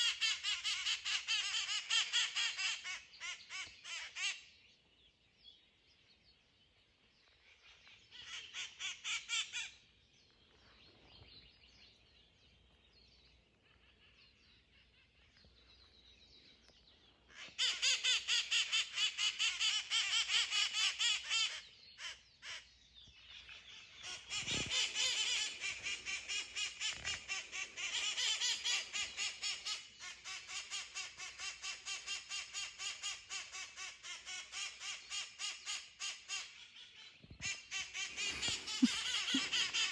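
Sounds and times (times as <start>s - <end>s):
parrots calling harshly: 37.4s - 39.9s.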